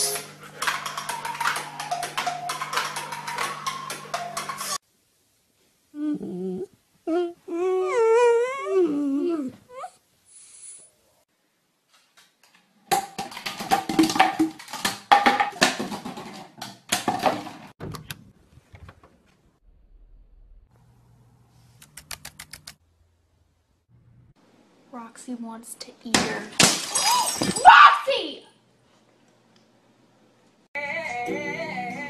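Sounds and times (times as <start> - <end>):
dog whining and howling: 6.0 - 10.0
plastic bottles knocking over: 12.9 - 17.7.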